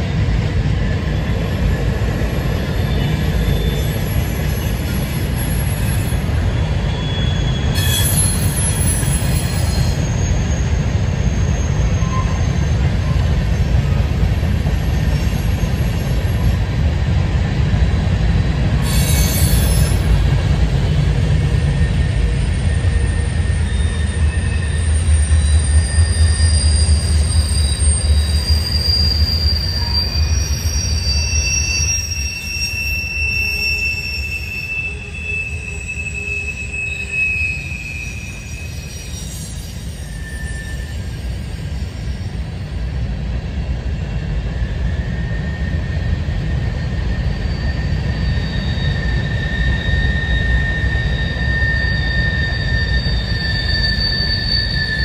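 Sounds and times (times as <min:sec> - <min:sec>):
freight train wheels rumbling on rail: 0:00.0 - 0:55.0
high-pitched wheel squeals: 0:01.2 - 0:16.6, 0:18.8 - 0:20.6, 0:21.2 - 0:42.9, 0:44.2 - 0:55.0.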